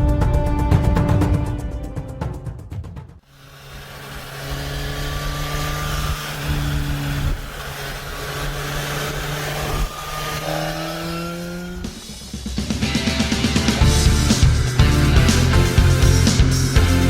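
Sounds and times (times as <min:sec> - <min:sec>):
intro music: 0:00.0 - 0:03.2, 0:10.9 - 0:17.0
motorcycle engine running: 0:03.2 - 0:17.0
wind rushing over microphone: 0:03.8 - 0:12.0.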